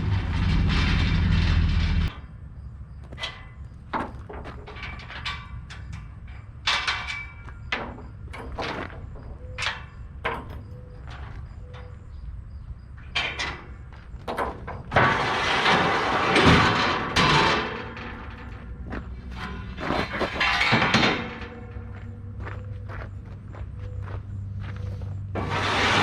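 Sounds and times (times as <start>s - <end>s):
metal knocks and clanks: 0.0s - 2.3s, 3.0s - 23.2s, 25.3s - 26.0s
rattling and scraping: 0.0s - 2.3s, 2.9s - 23.5s, 25.1s - 26.0s
low engine hum: 0.0s - 2.7s.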